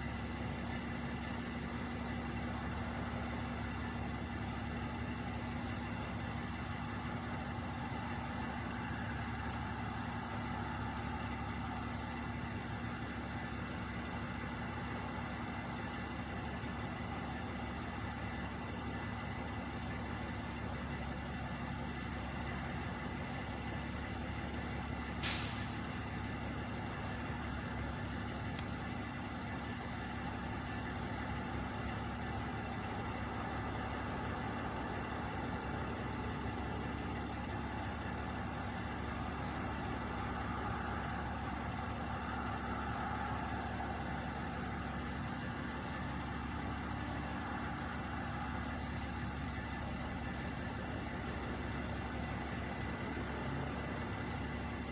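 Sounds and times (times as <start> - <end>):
diesel truck engines idling: 0.0 - 54.9
air brake hiss: 25.2 - 25.8.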